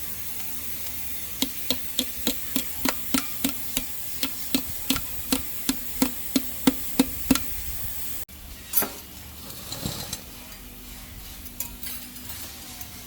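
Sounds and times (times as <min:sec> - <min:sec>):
hammer striking metal: 0:01.4 - 0:07.6.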